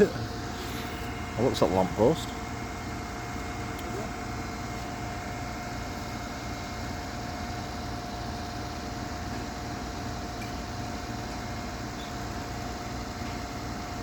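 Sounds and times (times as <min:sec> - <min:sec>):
faint whine: 0:00.0 - 0:07.8.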